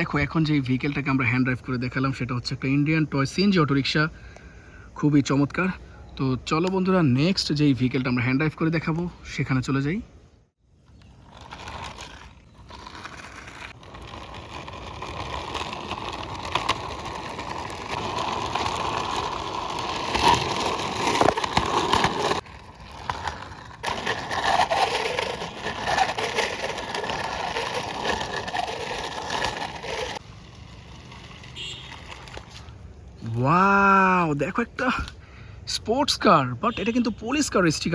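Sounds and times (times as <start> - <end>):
toy car wheels rolling on rough wall: 10.8 - 34.0.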